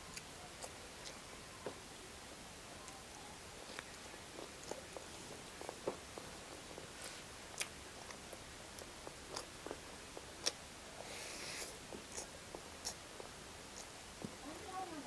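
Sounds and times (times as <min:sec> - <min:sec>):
person chewing food: 0:00.1 - 0:01.2, 0:03.6 - 0:14.0.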